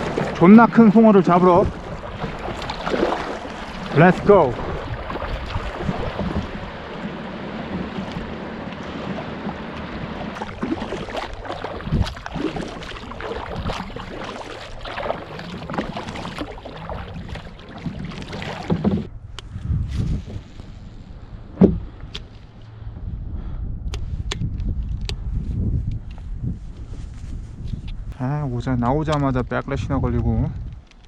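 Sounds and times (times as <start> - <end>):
paddle strokes splashing in water: 0.0 - 19.1
wind buffeting microphone: 0.0 - 31.0.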